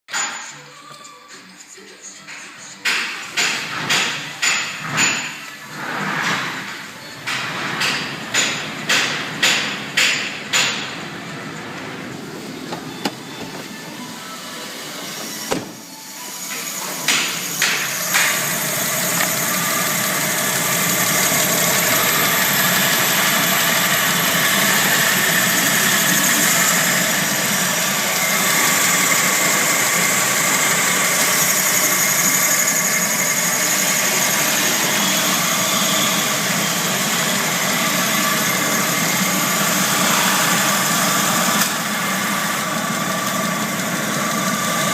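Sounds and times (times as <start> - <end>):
car engine idling: 17.1 - 44.9.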